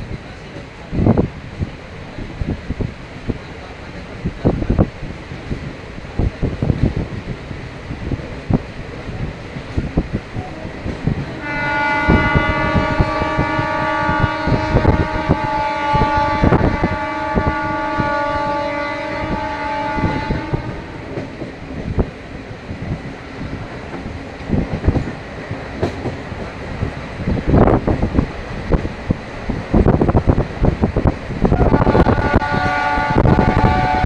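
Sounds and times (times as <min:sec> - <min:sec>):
train wheels clacking on rails: 0:08.1 - 0:13.6, 0:19.3 - 0:34.0
train horn: 0:11.4 - 0:21.3, 0:31.5 - 0:34.0.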